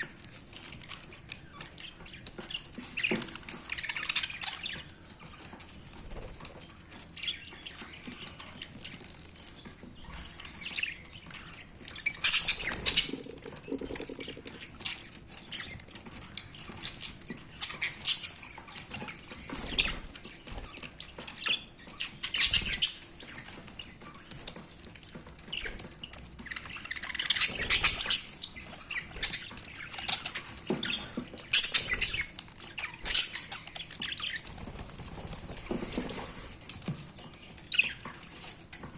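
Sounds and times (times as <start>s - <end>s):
faint bird chirps: 12.3s - 14.6s
birds splashing in water: 12.5s - 14.6s.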